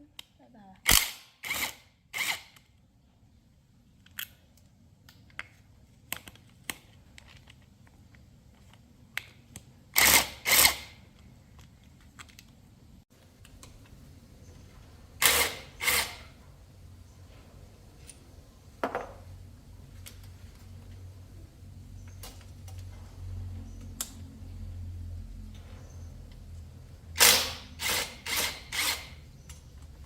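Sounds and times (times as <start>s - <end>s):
power tool bursts: 15.2s - 16.3s, 27.2s - 29.2s
light clicks and knocks of tools: 29.4s - 30.0s.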